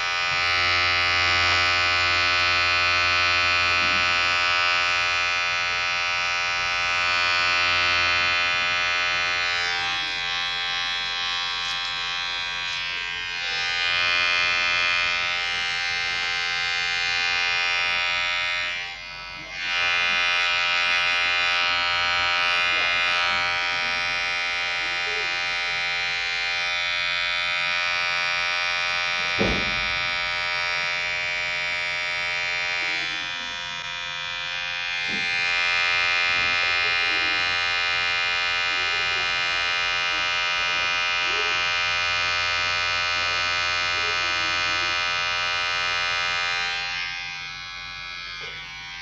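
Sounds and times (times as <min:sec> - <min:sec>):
electric hair clipper buzzing: 0:00.0 - 0:49.0
sharp knock: 0:29.4 - 0:30.0.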